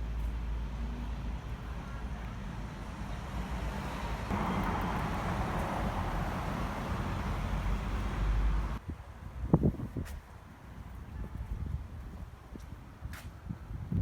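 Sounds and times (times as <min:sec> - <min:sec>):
road traffic rumble: 0:00.0 - 0:08.9.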